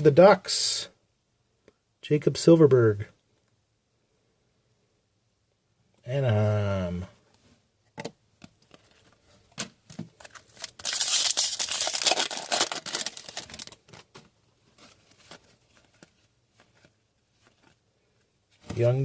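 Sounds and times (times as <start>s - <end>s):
foil wrapper tearing and crinkling: 10.3s - 14.1s.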